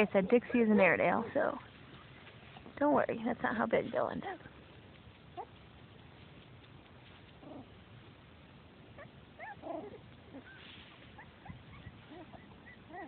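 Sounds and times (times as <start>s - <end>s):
puppies whimpering: 0.0s - 2.3s, 9.0s - 13.0s.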